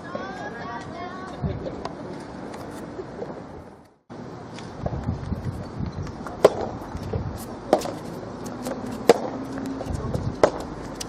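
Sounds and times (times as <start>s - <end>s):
steady background noise: 0.0s - 11.0s
rubber ball struck by rackets: 6.4s - 6.8s, 7.7s - 8.0s, 8.6s - 9.6s, 10.4s - 10.7s.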